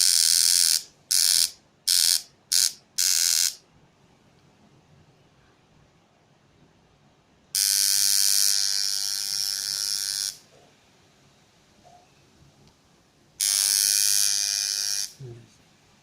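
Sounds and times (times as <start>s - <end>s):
tattoo machine buzzing: 0.0s - 3.6s, 7.5s - 10.6s, 13.4s - 15.2s.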